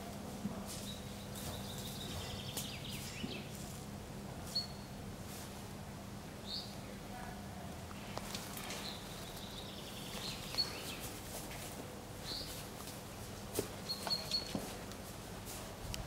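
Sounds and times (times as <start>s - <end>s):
birds chirping: 0.8s - 3.7s, 8.0s - 11.3s, 12.2s - 12.6s, 13.8s - 14.6s.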